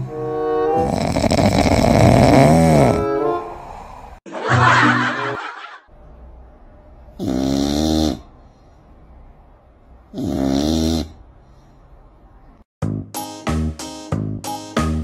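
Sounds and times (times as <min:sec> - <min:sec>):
cat snoring: 0:00.8 - 0:03.0, 0:07.1 - 0:08.3, 0:10.1 - 0:11.2.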